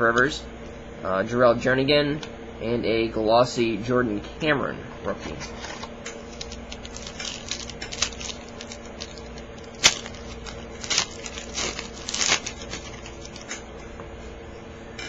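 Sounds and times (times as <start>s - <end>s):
steady low hum: 0.0s - 15.0s
wrapper crinkling and tearing: 5.5s - 13.6s.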